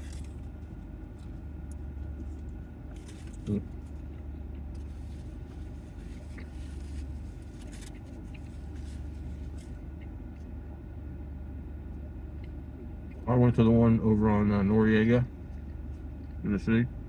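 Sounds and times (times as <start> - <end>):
car cabin hum: 0.0 - 17.0
rustling: 4.8 - 10.0.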